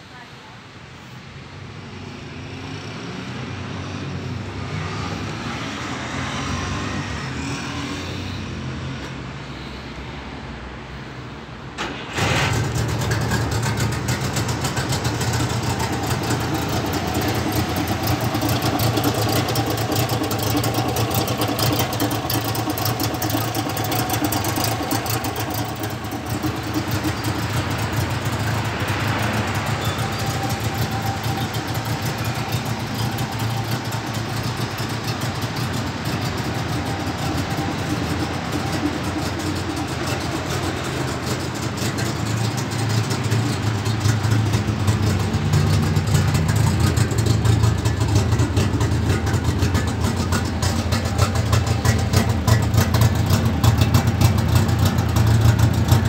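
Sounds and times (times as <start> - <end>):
two-stroke engine idling: 12.8 - 56.0.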